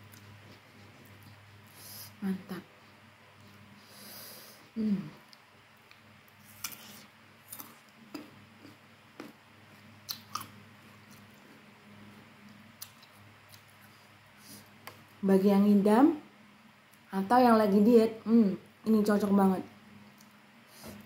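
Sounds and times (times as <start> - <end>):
person humming: 4.8 - 5.2
mouth chewing wet clicks: 10.1 - 11.3.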